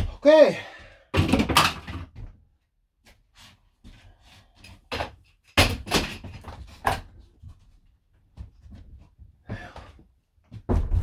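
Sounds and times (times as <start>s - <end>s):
wood cracking and banging: 10.7s - 11.0s.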